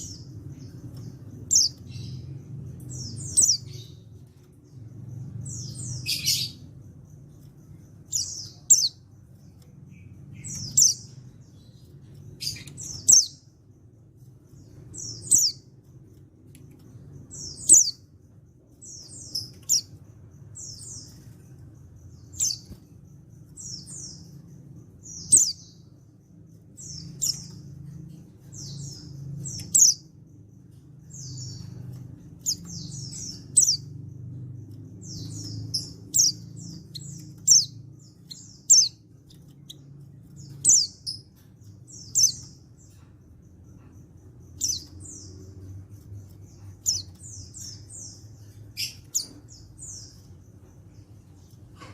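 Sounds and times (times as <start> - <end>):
bird chirping: 0.0 - 51.9
faint low hum: 0.0 - 51.9.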